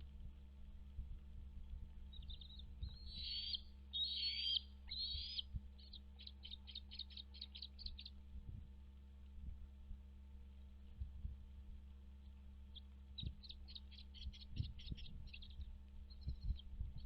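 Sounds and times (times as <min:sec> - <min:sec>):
steady low hum: 0:00.0 - 0:17.0
bald eagle calling: 0:02.2 - 0:08.1.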